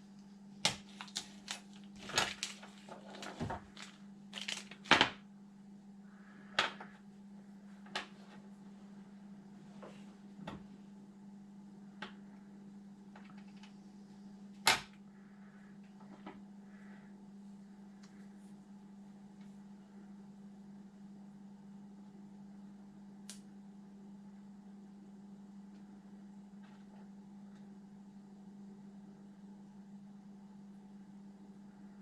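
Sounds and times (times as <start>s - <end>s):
steady low hum: 0.0s - 32.0s
packaging crinkling: 0.6s - 5.2s.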